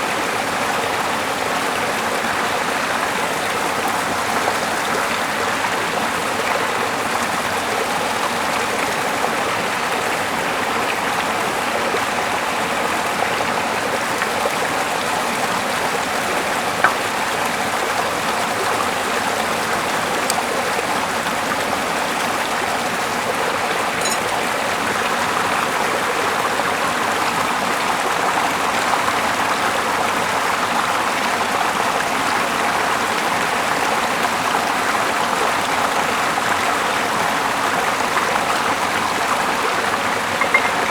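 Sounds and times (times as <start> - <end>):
sharp click: 24.0 - 24.3.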